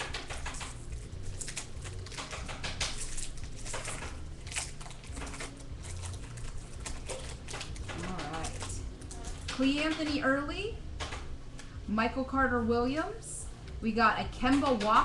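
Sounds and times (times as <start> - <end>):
steady low hum: 0.0 - 15.0
wrapper crinkling and rustling: 0.3 - 9.5.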